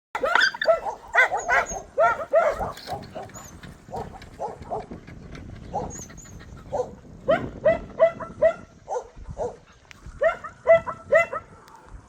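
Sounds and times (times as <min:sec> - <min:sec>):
dog barking: 0:00.2 - 0:04.9, 0:06.7 - 0:09.6, 0:10.2 - 0:11.9.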